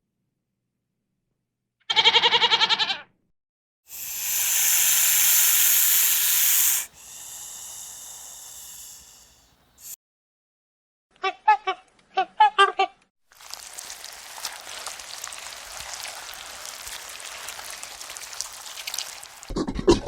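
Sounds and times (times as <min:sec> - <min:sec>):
farm animal bleating: 0:01.9 - 0:03.1
breathy hiss: 0:03.9 - 0:10.0.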